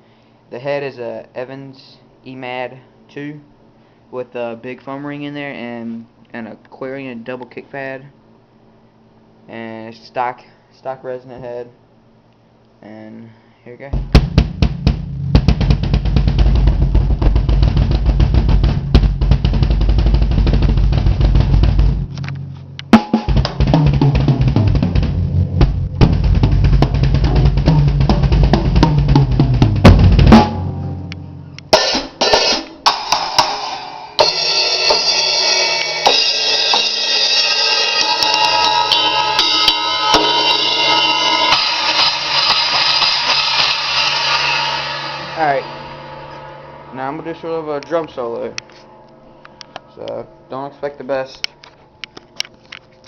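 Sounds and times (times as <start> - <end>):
bass drum kicks: 14.0 - 31.8
ringing cymbal hits: 30.3 - 51.1.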